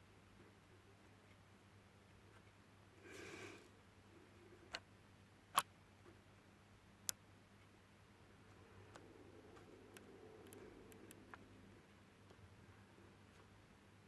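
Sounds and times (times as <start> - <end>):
sharp clicks: 8.9 - 11.4.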